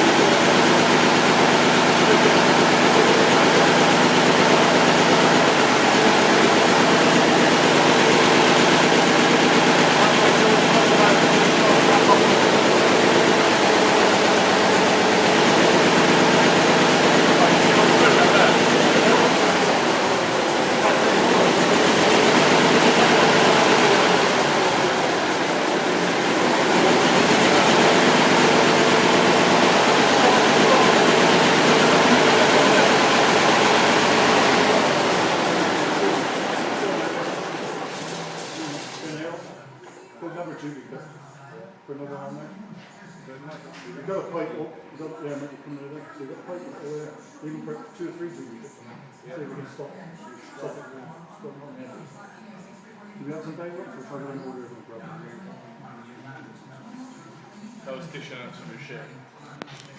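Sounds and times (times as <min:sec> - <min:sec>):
diesel engine running: 0:00.0 - 0:39.2.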